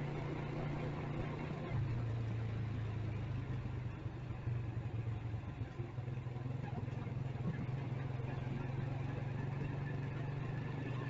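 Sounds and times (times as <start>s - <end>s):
motorcycle engine running: 0.0s - 11.0s
street noise: 0.0s - 11.0s.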